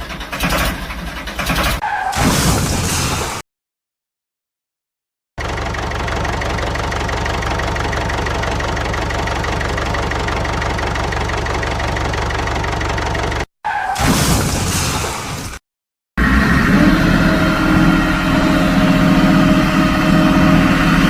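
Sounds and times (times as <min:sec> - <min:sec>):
engine idling: 0:05.4 - 0:13.5.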